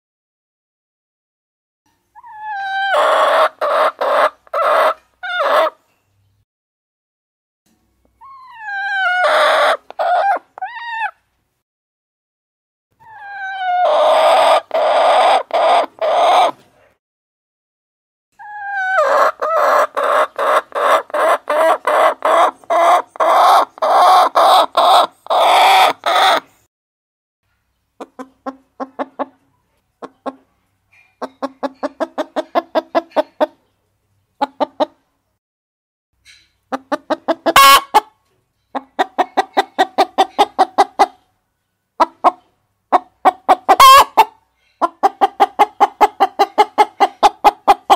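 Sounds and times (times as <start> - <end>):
hens clucking: 2.2 - 5.8, 8.2 - 11.2, 13.0 - 16.6, 18.4 - 26.5, 28.0 - 33.7, 34.4 - 35.0, 36.7 - 41.3, 42.0 - 47.9.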